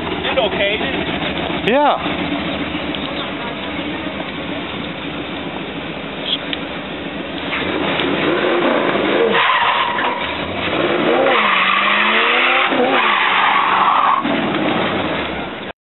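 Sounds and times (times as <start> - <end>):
engine revving hard: 7.5 - 15.2
tyres squealing: 8.5 - 14.3.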